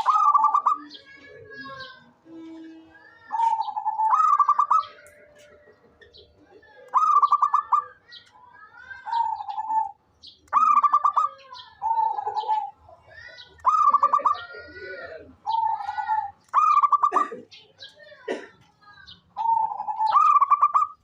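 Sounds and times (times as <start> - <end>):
dove cooing: 0.0 - 8.0, 9.1 - 12.8, 13.6 - 17.4, 19.4 - 21.0
small birds chirping: 0.0 - 21.0.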